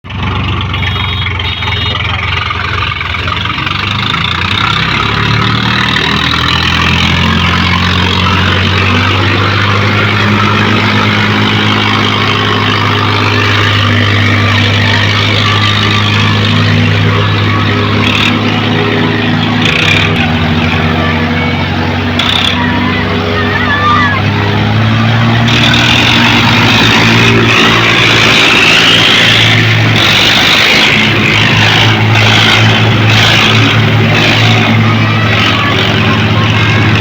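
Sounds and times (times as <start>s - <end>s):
diesel tractor engines running hard: 0.0s - 37.0s.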